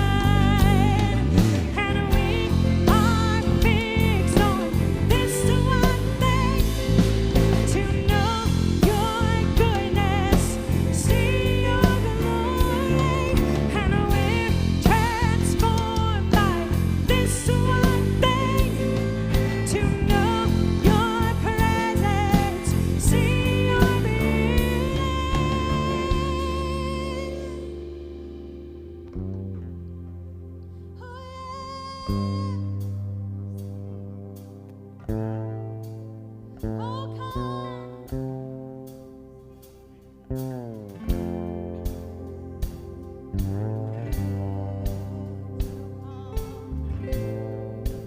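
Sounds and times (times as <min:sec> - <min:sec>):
person singing: 0:00.0 - 0:28.2, 0:30.8 - 0:33.0, 0:36.8 - 0:38.4, 0:42.4 - 0:48.0
drum kit beat: 0:00.0 - 0:29.2, 0:40.3 - 0:48.0
guitar: 0:00.0 - 0:48.0.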